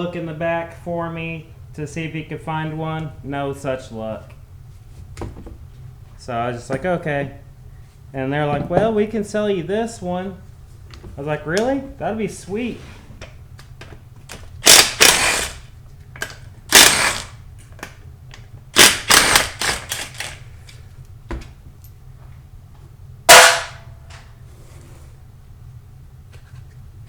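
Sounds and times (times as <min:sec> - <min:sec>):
cordless power driver spinning: 0:14.6 - 0:15.6, 0:16.7 - 0:17.4, 0:18.8 - 0:20.5.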